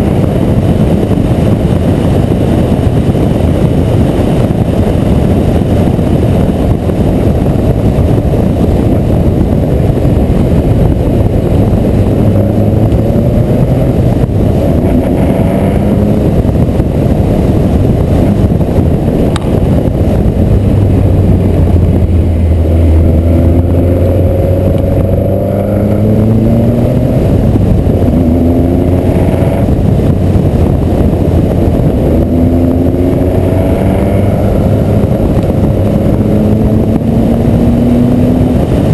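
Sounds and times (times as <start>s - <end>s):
race car engine accelerating: 7.3s - 18.6s, 19.2s - 38.9s.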